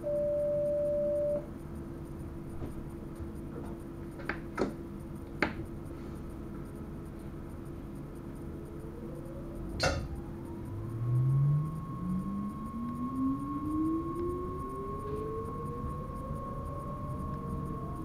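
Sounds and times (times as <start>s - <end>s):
rising whine: 0.0s - 1.5s, 8.2s - 18.0s
train cab hum: 0.0s - 18.0s.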